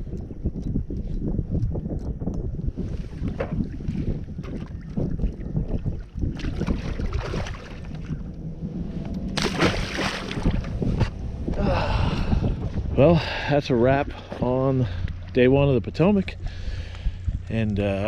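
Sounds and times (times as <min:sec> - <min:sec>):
wind buffeting microphone: 0:00.0 - 0:18.0
water moving around kayak: 0:02.7 - 0:11.7.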